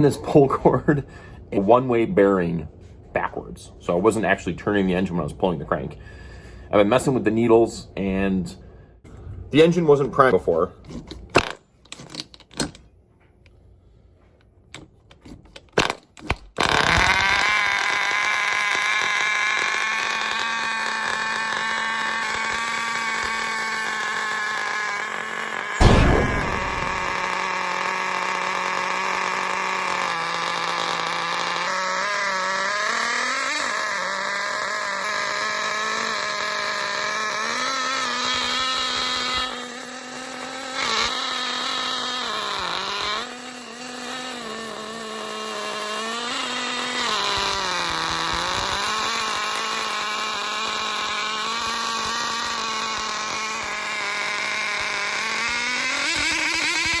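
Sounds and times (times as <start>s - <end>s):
small nitro engine running: 16.8s - 26.0s, 28.8s - 57.0s.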